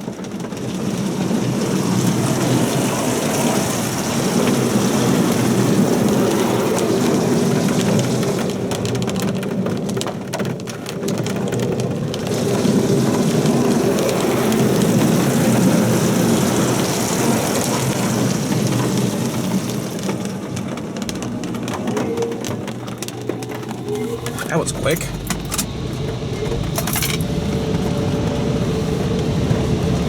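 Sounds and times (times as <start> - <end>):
car wash spraying water on car: 0.0 - 30.0.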